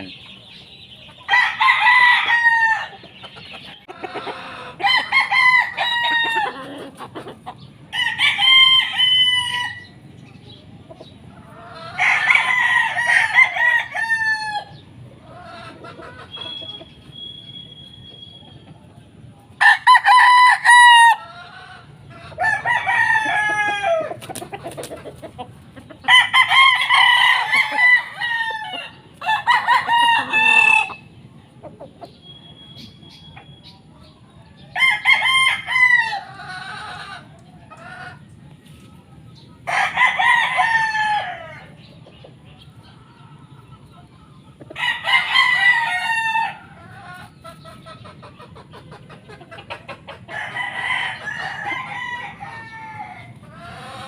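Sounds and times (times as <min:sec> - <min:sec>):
roosters crowing: 0:00.0 - 0:38.8, 0:39.4 - 0:54.0.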